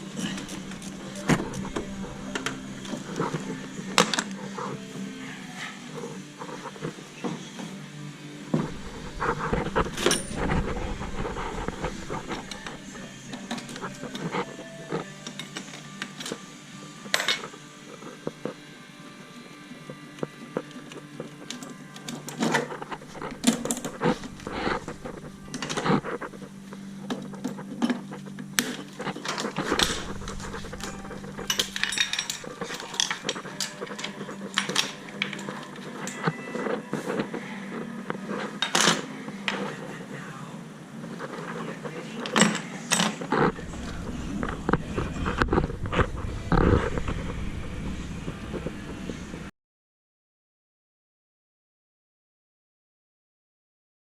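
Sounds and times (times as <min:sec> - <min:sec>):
steady low hum: 0:00.0 - 0:06.9, 0:07.8 - 0:15.2, 0:22.7 - 0:34.6, 0:43.3 - 0:49.5
metal tools clinking: 0:09.9 - 0:10.7, 0:28.7 - 0:35.5.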